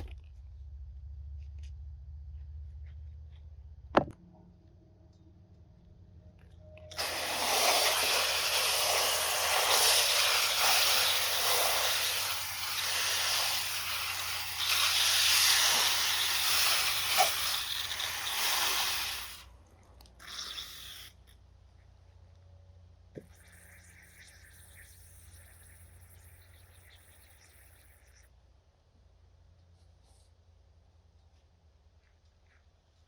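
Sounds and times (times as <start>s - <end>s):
hissing water spray: 6.9s - 19.5s, 20.2s - 21.3s.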